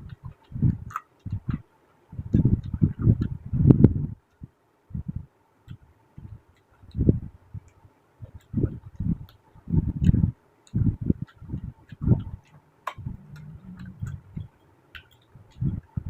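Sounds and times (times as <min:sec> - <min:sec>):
chewing: 0:00.0 - 0:01.7, 0:02.3 - 0:03.4, 0:07.7 - 0:16.0
wet mouth clicks and smacks: 0:00.0 - 0:01.7, 0:02.3 - 0:03.4, 0:05.7 - 0:16.0.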